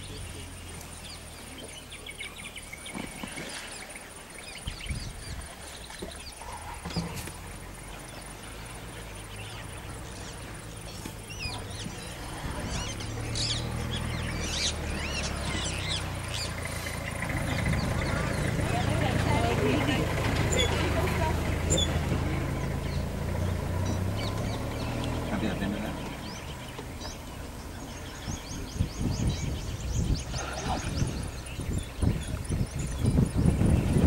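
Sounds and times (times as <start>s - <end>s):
birds chirping: 0.0s - 34.0s
low rumble: 9.0s - 34.0s.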